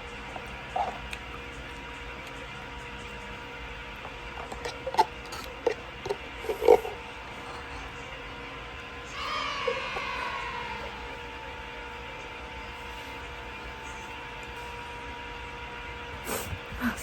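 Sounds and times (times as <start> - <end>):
eating noises: 0.0 - 8.2
steady background hum: 0.0 - 17.0.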